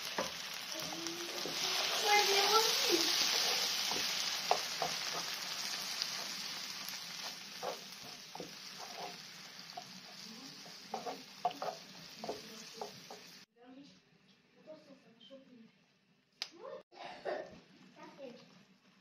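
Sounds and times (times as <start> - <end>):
wooden spoon stirring: 0.0 - 13.4
food sizzling in a frying pan: 0.0 - 13.5.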